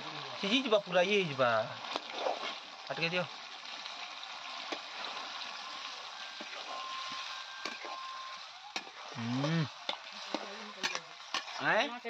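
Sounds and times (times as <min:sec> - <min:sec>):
curry sizzling in a pan: 0:00.0 - 0:12.0
wooden spatula scraping: 0:01.8 - 0:02.7.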